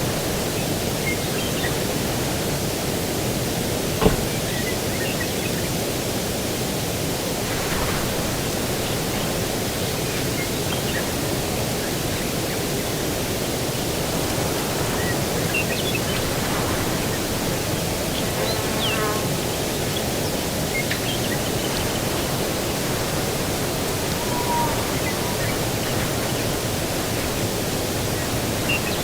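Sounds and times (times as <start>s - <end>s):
steady outdoor rushing noise: 0.0s - 29.0s
faint bird chirps: 23.8s - 26.8s.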